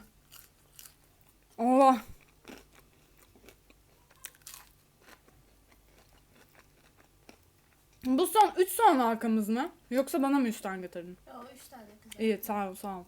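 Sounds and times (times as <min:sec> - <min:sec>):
crunching and chewing onion ring: 0:00.0 - 0:08.1.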